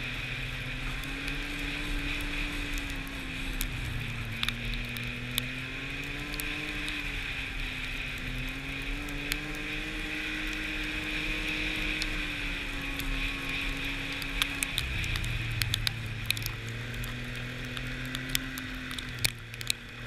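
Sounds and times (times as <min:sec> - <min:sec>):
snowmobile engine: 0:00.0 - 0:20.0
sharp ticks: 0:00.9 - 0:09.7, 0:10.4 - 0:20.0.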